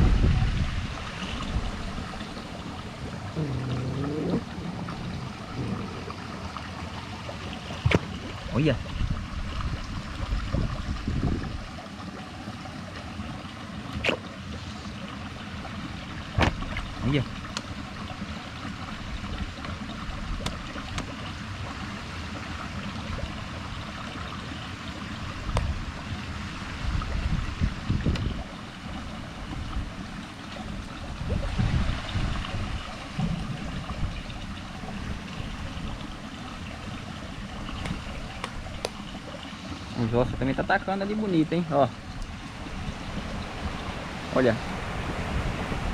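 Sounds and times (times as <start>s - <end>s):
wind buffeting microphone: 0.0s - 11.8s, 25.2s - 45.9s
water sloshing: 0.0s - 45.9s.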